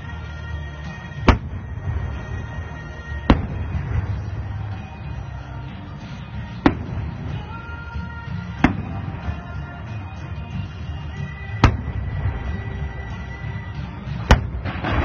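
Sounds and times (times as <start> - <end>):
music: 0.0 - 15.0
firework shells booming: 1.2 - 4.8, 6.6 - 7.5, 8.5 - 9.5, 11.6 - 13.2, 14.1 - 15.0.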